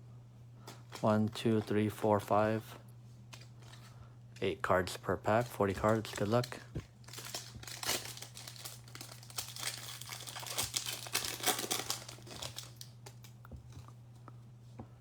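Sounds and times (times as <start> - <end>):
low electrical hum: 0.0 - 15.0
wrapper tearing and crinkling: 5.7 - 13.3.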